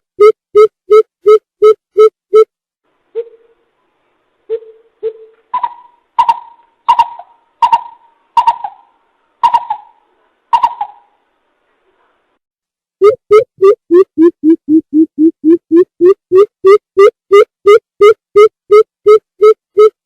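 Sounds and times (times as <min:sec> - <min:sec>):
bird hollow hooting calls: 0:04.6 - 0:11.1.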